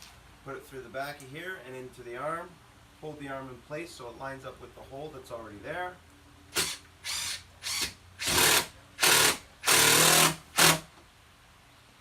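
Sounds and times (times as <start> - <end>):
impact driver driving a screw: 6.5 - 10.9.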